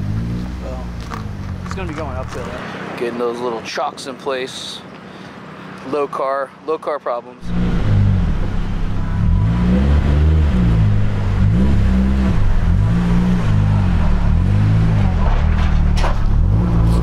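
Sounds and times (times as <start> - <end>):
car engine revving: 0.0 - 2.8, 7.4 - 17.0.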